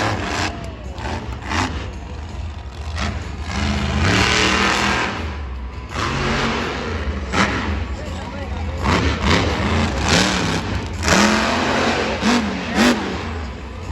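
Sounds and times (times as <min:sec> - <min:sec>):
truck engine revving: 0:00.0 - 0:13.9.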